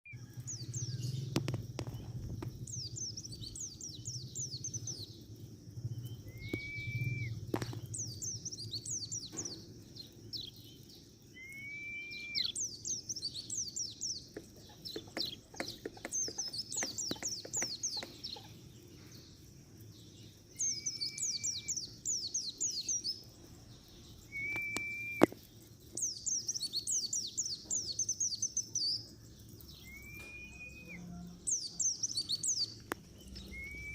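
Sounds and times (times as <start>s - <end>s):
bird twittering: 6.2s - 7.3s, 11.4s - 18.6s, 24.3s - 25.4s, 29.8s - 33.9s
sharp clicks: 24.5s - 25.4s
short clear whistle: 30.0s - 31.0s.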